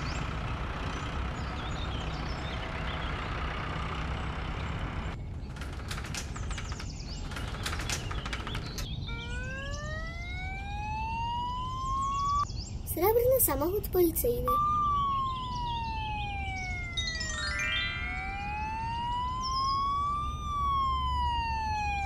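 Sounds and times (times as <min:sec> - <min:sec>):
birds chirping: 0:00.0 - 0:22.0
cartoon truck engine rumble: 0:00.0 - 0:22.0
roller door rattling: 0:04.0 - 0:09.4
police siren rising: 0:08.9 - 0:12.5, 0:14.4 - 0:22.0.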